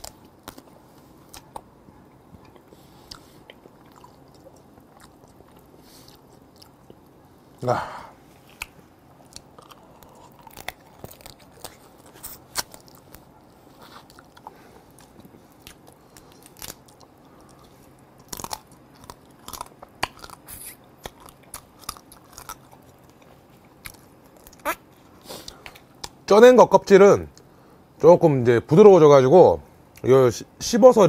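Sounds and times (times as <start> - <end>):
chewing and crunching: 0.0 - 7.6, 8.3 - 26.2
crab shell cracking: 8.5 - 13.2, 15.0 - 24.7.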